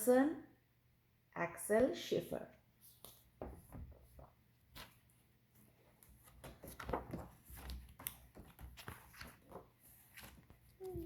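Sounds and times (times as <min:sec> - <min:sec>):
book pages rustling: 0:02.8 - 0:11.0
soft taps of book handling: 0:02.9 - 0:05.0.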